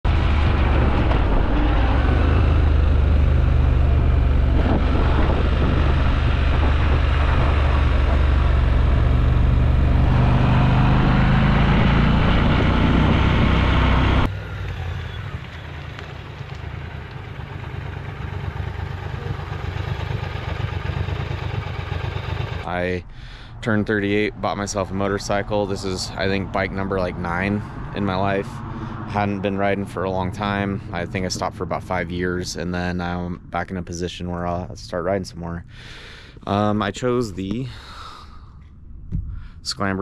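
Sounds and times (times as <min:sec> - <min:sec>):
motorcycle engine running: 0:00.0 - 0:22.8
rushing wind noise: 0:00.1 - 0:14.3.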